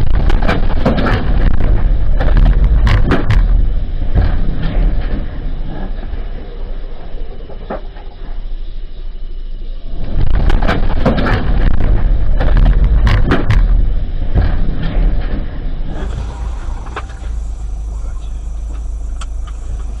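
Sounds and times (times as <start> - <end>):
knocks clatter and scraping: 0.0 - 6.2, 10.1 - 17.5
car road rumble: 0.0 - 8.5, 10.2 - 20.0.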